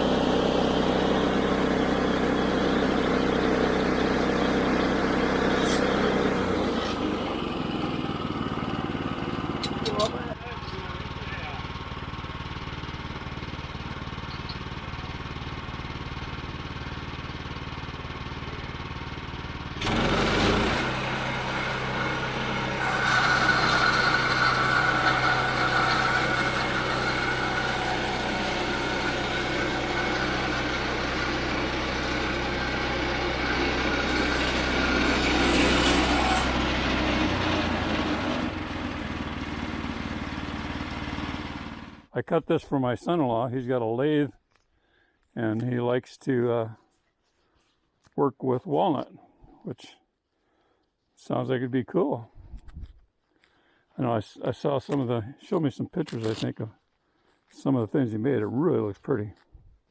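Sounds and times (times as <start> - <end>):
band saw blade whining through log: 0.0 - 42.0, 56.1 - 56.5
sawmill engine running: 0.0 - 42.1.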